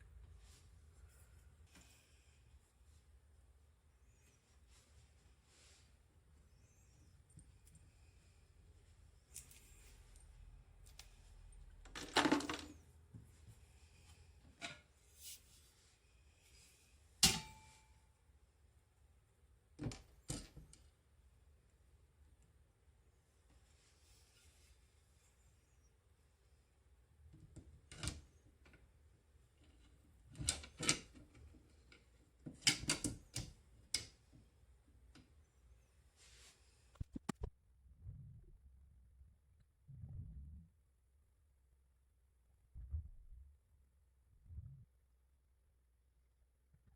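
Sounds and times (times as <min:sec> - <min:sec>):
sharp clicks and snaps: 0:36.9 - 0:37.5.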